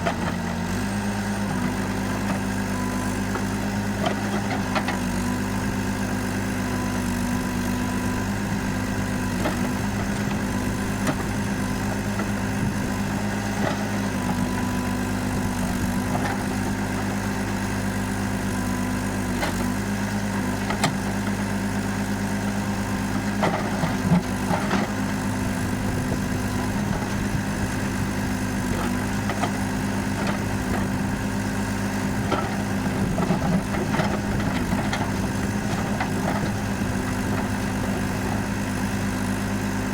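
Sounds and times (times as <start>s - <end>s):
diesel engine idling: 7.4s - 39.9s.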